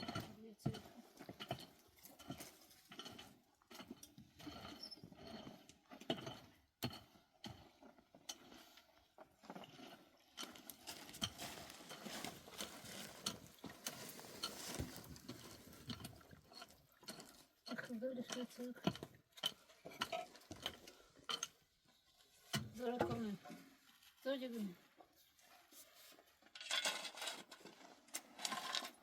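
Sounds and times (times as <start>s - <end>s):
scraping on stone: 25.8s - 29.0s.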